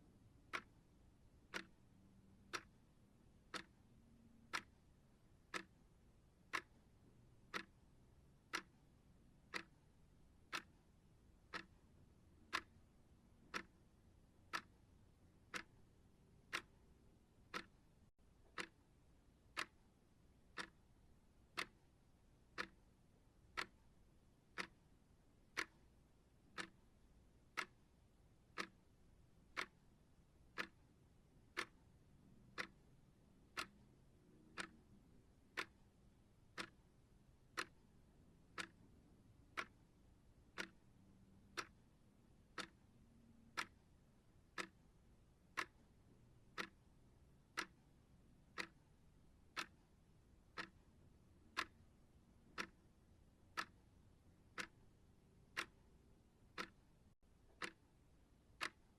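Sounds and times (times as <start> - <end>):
timer ticking: 0.2 - 58.9.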